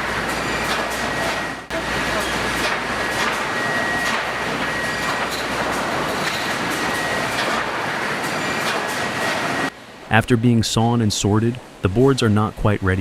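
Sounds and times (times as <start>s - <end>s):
boards clattering on conveyors: 0.0s - 9.7s.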